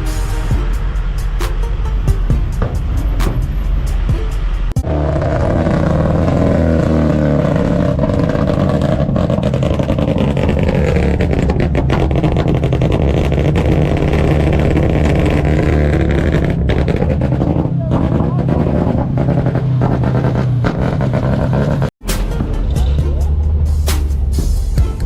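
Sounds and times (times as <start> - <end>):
car engine running loudly: 0.0 - 24.7.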